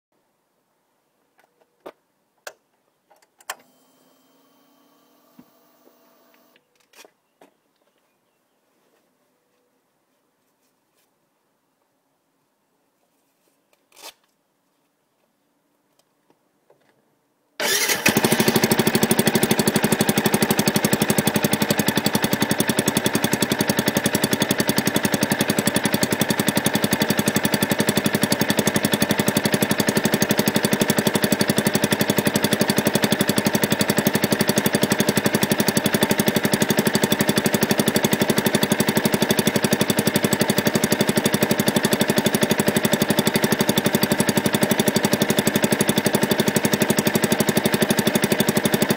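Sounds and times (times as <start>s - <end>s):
motorcycle engine idling: 17.7s - 48.9s.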